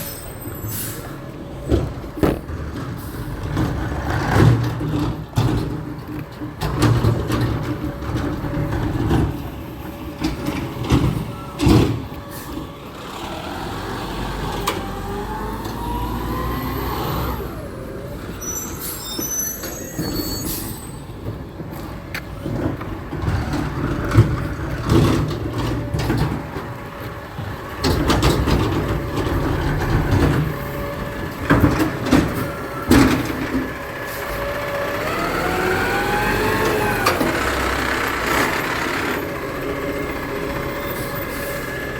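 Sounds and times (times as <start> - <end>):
knocks and clanks: 1.6 - 9.5, 31.3 - 33.8
garbage truck engine revving: 6.7 - 18.4, 22.4 - 41.9.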